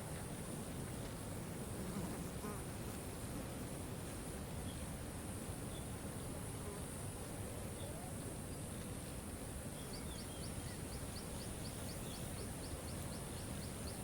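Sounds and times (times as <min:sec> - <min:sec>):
faint bird chirps: 0:07.7 - 0:08.7, 0:09.7 - 0:14.0.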